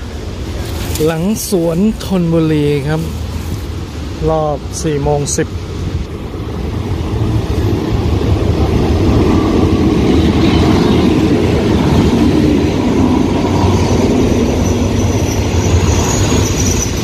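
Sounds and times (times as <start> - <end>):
diesel locomotive passing: 0.0 - 17.0
train carriages rolling on rails: 0.0 - 17.0
high brake squeal: 13.6 - 17.0.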